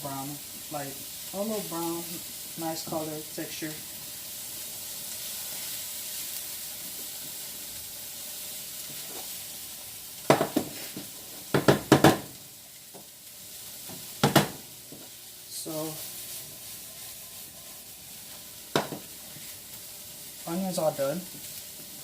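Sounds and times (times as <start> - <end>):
vegetables sizzling in oil: 0.0 - 22.0
utensil knocking against pan: 11.5 - 12.3, 14.2 - 14.6, 18.7 - 19.0.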